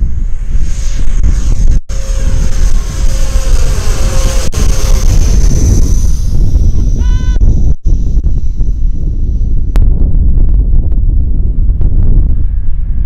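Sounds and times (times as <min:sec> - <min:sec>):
wind rumble on microphone: 0:00.0 - 0:13.0
jet engines whining: 0:00.8 - 0:07.0.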